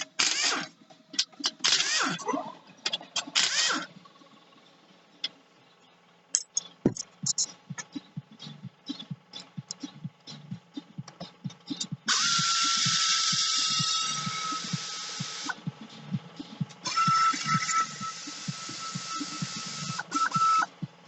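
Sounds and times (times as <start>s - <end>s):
power tool whining: 0.0s - 0.8s, 1.4s - 2.2s, 3.2s - 4.0s, 12.1s - 15.6s, 16.8s - 20.8s
tools clinking on metal: 6.3s - 7.5s.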